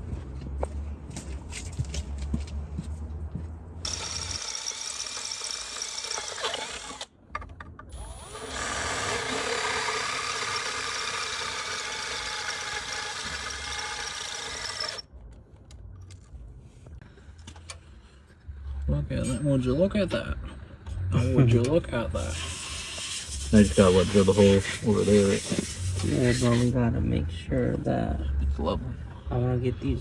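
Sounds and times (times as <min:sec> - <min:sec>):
electric drill running: 0:03.9 - 0:07.1, 0:07.9 - 0:15.0, 0:22.3 - 0:26.7.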